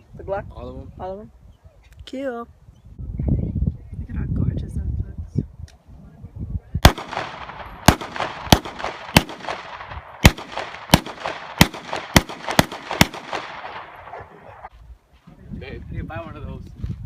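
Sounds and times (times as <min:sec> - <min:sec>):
gunshots with echo: 0:06.8 - 0:14.7.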